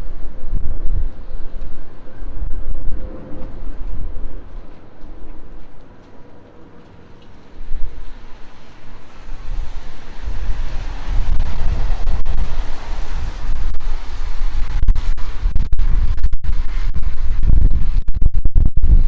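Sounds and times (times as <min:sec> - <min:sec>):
aircraft roar overhead: 0:00.0 - 0:14.5
wind rumble on microphone: 0:00.0 - 0:19.0.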